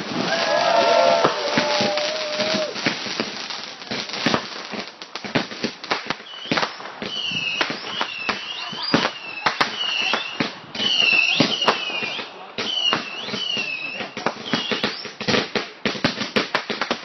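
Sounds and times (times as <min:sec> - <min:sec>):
fireworks banging and crackling: 0:00.0 - 0:17.0
firework whistles bending in pitch: 0:06.2 - 0:15.2.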